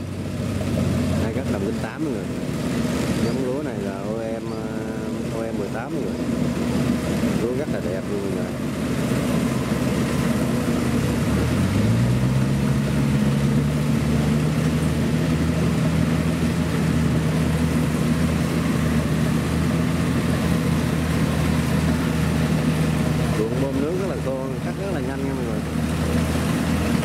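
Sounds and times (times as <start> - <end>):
combine harvester diesel engine: 0.0 - 27.0.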